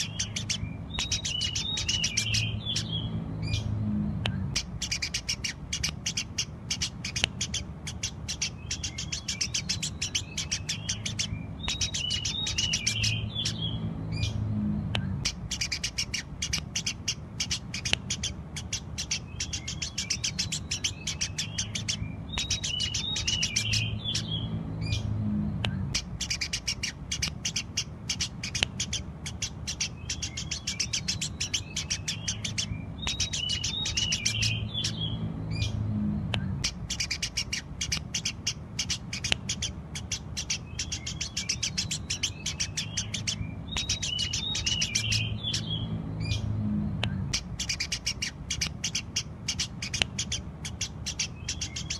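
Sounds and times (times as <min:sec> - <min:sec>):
sparrow chirping and chattering: 0:00.0 - 0:51.9
low rumble: 0:00.6 - 0:04.9, 0:12.9 - 0:15.6, 0:23.7 - 0:26.7, 0:34.4 - 0:37.4, 0:45.2 - 0:47.6.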